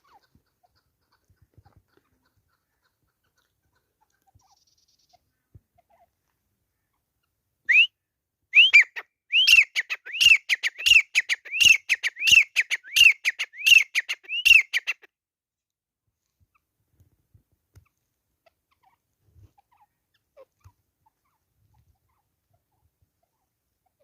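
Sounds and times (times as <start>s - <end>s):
bird whistled calls: 7.7s - 15.0s.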